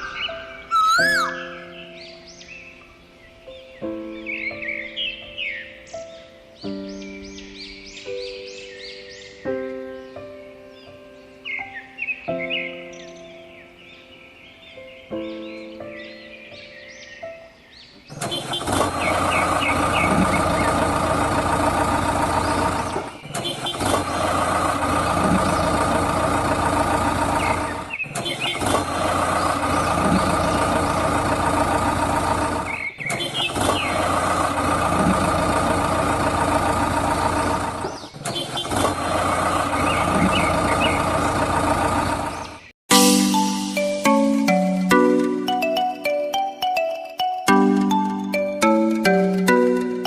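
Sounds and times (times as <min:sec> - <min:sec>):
engine running: 0:18.1 - 0:46.2, 0:47.5 - 0:50.0.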